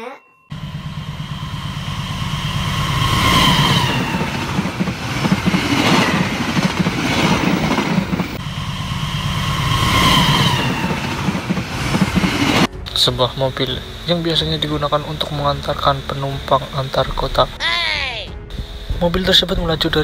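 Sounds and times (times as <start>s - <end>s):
low train rumble: 0.5s - 17.6s, 18.4s - 20.0s
train wheels clattering: 1.9s - 8.4s, 9.4s - 13.1s.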